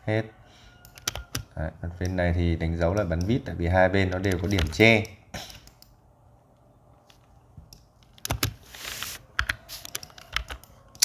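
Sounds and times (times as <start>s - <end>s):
keyboard and mouse clicks: 0.8s - 2.2s, 4.1s - 6.0s, 7.1s - 8.6s, 9.4s - 11.0s.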